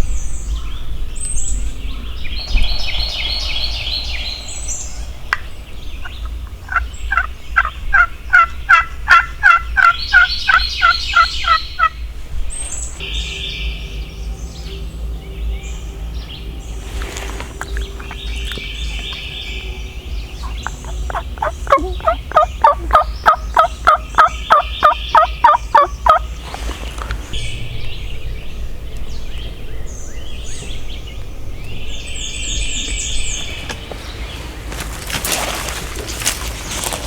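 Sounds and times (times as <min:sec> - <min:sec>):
songbirds chirping: 0:00.0 - 0:37.0
wild turkey yelps: 0:20.4 - 0:26.7.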